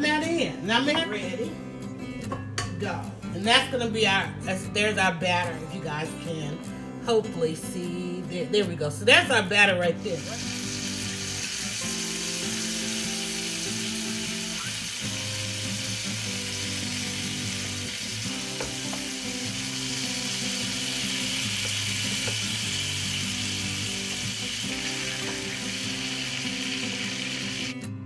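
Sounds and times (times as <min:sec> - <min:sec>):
background music: 0:00.0 - 0:28.0
butter sizzling in a skillet: 0:10.1 - 0:27.8.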